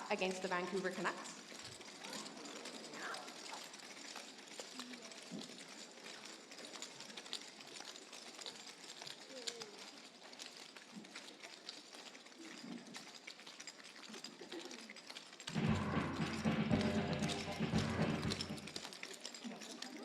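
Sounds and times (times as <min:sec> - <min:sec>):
rustles and clicks: 0:00.0 - 0:20.0
bagpipe dance music: 0:15.6 - 0:18.6.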